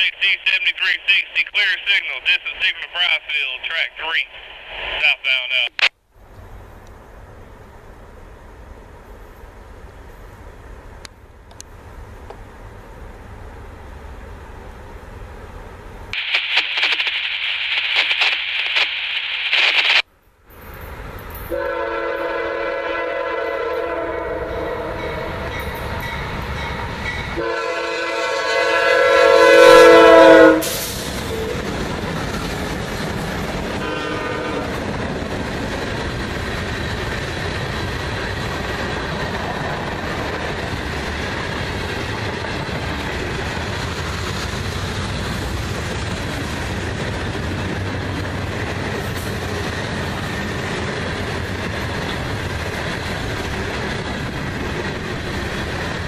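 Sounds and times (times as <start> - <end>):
train horn blasts: 21.5 - 25.8, 27.3 - 31.6, 33.8 - 34.8.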